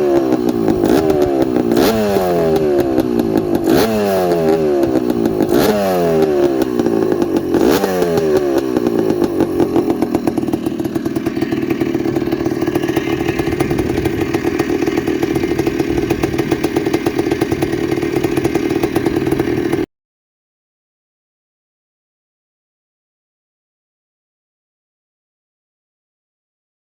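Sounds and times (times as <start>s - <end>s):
two-stroke engine revving and idling: 0.0s - 19.9s.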